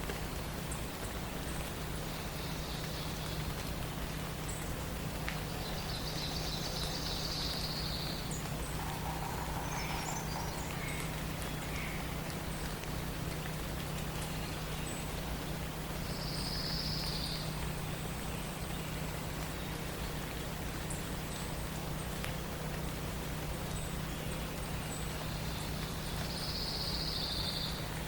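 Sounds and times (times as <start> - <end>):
low steady hum: 0.1 - 28.0
songbirds singing: 0.7 - 22.2, 23.4 - 28.0
steady hiss: 1.7 - 14.6
low buzzy bird trill: 8.6 - 12.3.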